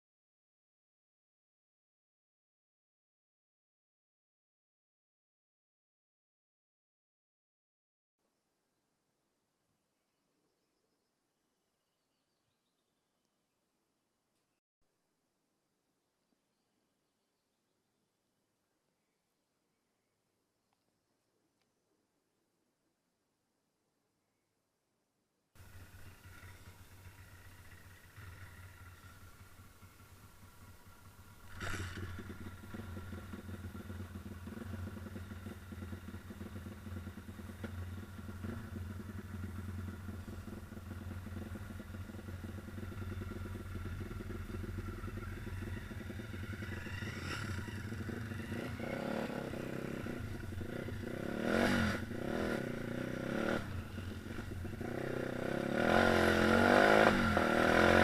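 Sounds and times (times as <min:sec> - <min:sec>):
engine revving: 0:25.6 - 0:58.0
motorbike engine starting and idling: 0:25.6 - 0:58.0.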